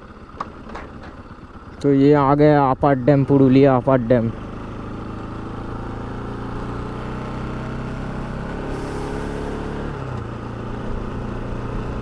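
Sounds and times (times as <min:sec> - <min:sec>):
motorcycle engine idling: 0:00.0 - 0:12.0
brief hiss: 0:08.6 - 0:09.7.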